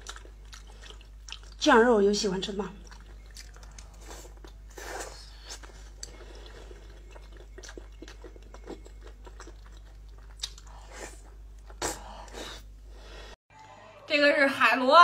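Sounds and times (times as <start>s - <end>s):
person chewing meat: 0.0s - 1.6s, 2.8s - 12.6s
steady low hum: 0.0s - 13.4s.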